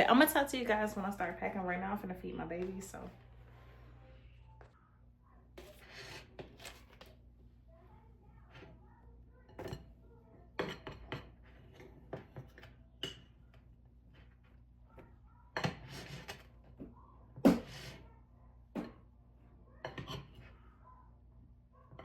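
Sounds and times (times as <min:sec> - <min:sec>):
faint low hum: 0:00.0 - 0:15.6
dishes and utensils clinking: 0:09.4 - 0:13.6, 0:15.6 - 0:18.0, 0:19.8 - 0:20.6.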